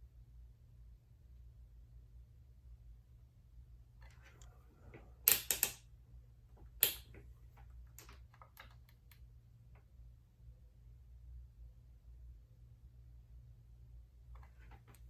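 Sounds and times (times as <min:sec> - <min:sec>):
small hard objects clicking: 0:06.8 - 0:07.1.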